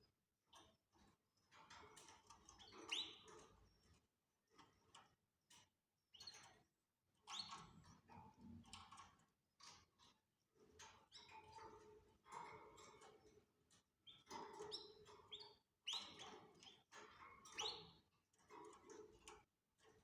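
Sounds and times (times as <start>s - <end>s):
canaries chirping: 2.6s - 3.4s, 14.0s - 18.0s.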